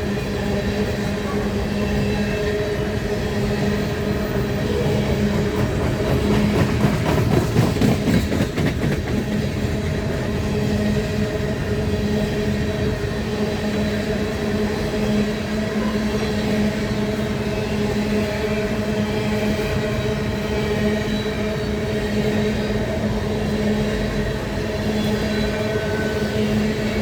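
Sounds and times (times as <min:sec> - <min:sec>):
train rumbling by: 0:00.0 - 0:27.0
wheels clattering over rails: 0:03.5 - 0:10.3.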